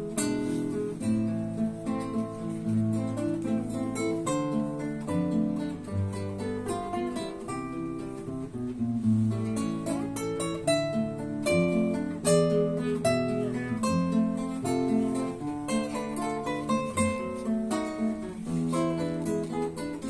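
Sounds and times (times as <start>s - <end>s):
classical guitar duet: 0.0s - 20.0s.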